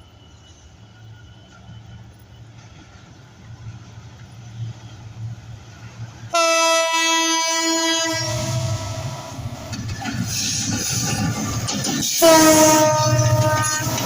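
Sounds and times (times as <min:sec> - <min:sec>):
train rumbling: 0:00.0 - 0:14.0
locomotive horn blast: 0:06.3 - 0:09.6, 0:12.2 - 0:14.0.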